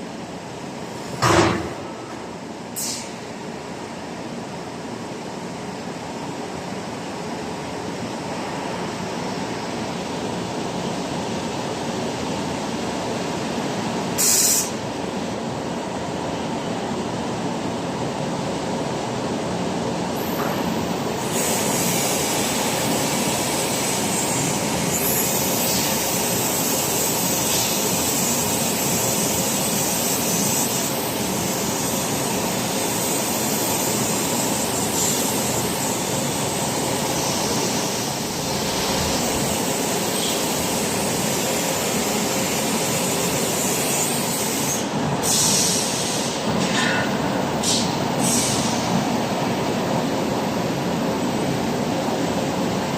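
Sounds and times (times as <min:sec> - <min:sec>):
sharp hiss: 0:02.7 - 0:03.2, 0:14.2 - 0:14.8, 0:21.2 - 0:46.8, 0:47.5 - 0:49.0
machine hissing roar: 0:21.2 - 0:47.0, 0:47.6 - 0:49.0.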